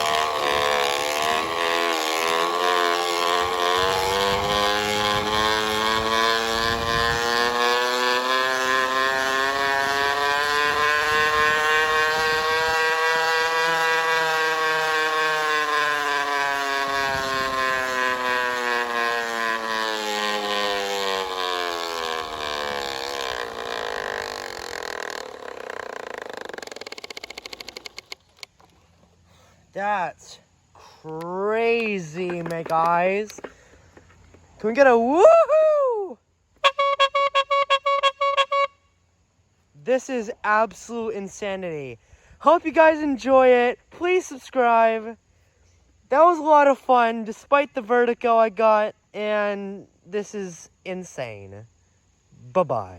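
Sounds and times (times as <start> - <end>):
bottle buzzing on spinning bike wheel: 0.0 - 28.8.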